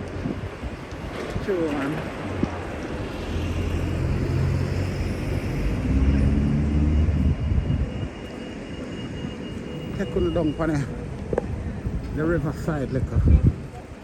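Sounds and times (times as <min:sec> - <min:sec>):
street noise: 0:00.0 - 0:14.0
passing vehicle engine drone: 0:01.7 - 0:09.8.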